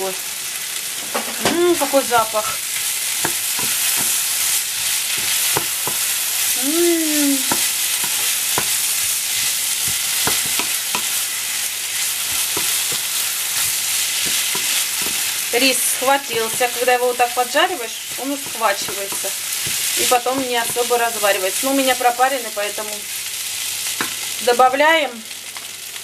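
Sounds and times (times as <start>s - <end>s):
rice sizzling in a frying pan: 0.0s - 26.0s
spatula knocking and scraping pan: 1.2s - 6.4s, 7.4s - 22.1s, 23.9s - 24.3s.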